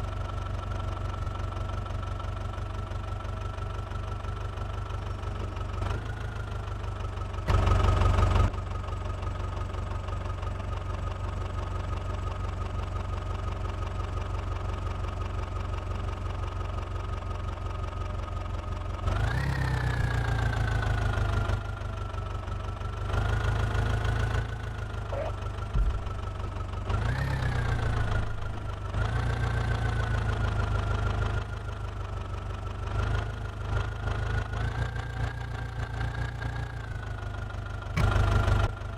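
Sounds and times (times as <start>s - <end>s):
heavy diesel engine idling and revving: 0.0s - 38.9s.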